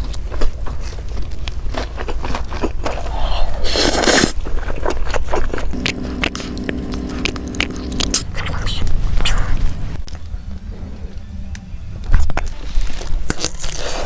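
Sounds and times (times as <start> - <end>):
biting and chewing: 0.0 - 9.0, 12.8 - 14.0
noisy rush: 5.7 - 10.0
steady low tone: 5.7 - 10.0.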